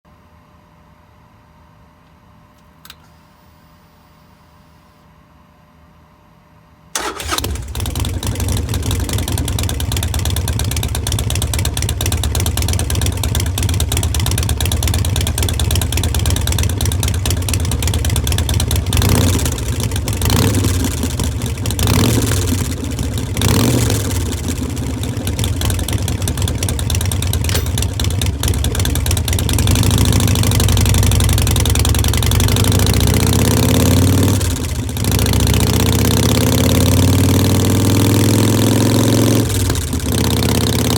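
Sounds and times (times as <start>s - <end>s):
motorcycle engine idling: 7.0s - 36.7s
motorcycle engine revving: 7.0s - 40.9s.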